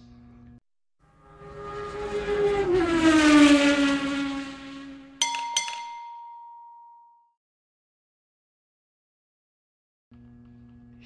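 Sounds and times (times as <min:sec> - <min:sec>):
car engine passing at speed: 0:01.0 - 0:06.2
ringing ding: 0:05.2 - 0:07.3.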